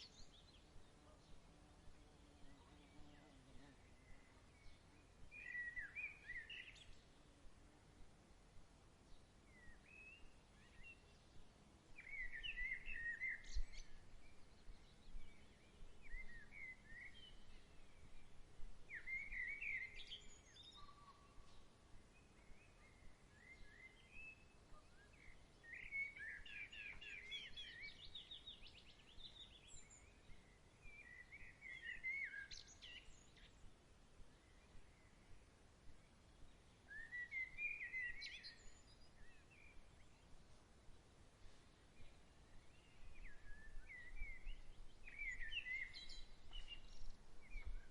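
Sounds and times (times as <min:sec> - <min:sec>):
faint songbirds singing: 0:00.0 - 0:47.9.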